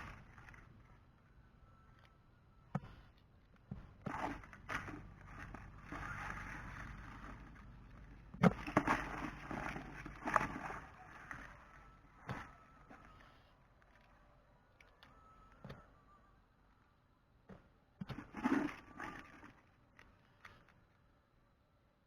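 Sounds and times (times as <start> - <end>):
rough scraping or rustling: 4.0 - 7.8.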